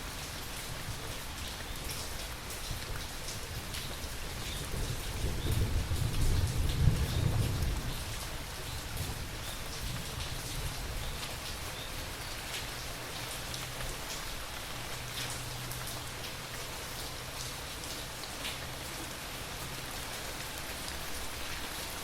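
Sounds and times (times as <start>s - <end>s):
rain falling: 0.0s - 22.0s
low thunder rumble: 4.6s - 8.2s.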